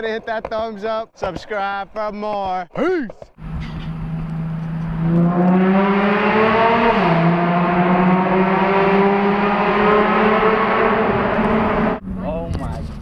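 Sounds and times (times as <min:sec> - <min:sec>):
car engine accelerating hard: 0:03.4 - 0:13.0.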